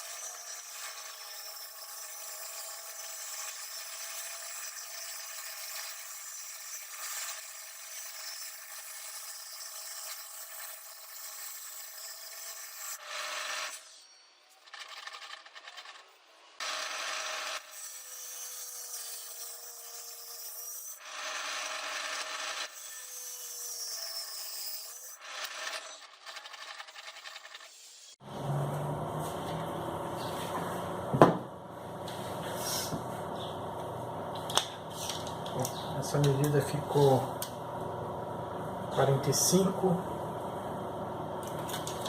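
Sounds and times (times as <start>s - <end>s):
tool rasping wood: 0.0s - 13.9s.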